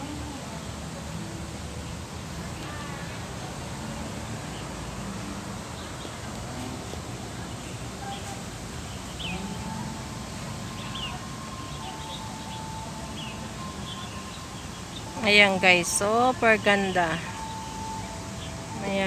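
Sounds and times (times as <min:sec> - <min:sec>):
outdoor ambience hiss: 0:00.0 - 0:19.0
faint bird chirps: 0:10.6 - 0:16.1.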